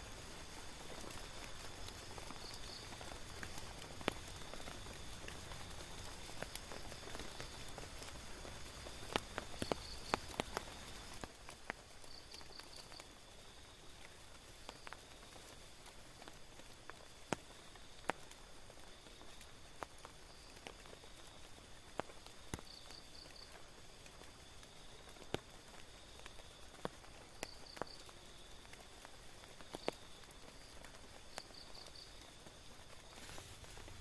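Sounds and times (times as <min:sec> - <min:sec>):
rain on tent: 0:00.0 - 0:34.0
drops ticking on fabric: 0:01.0 - 0:13.1.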